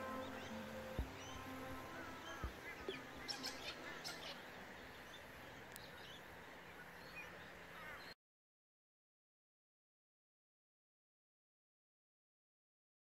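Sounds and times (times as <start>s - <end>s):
birds chirping and calling: 0.0s - 8.1s
faint steady hiss: 0.0s - 8.2s.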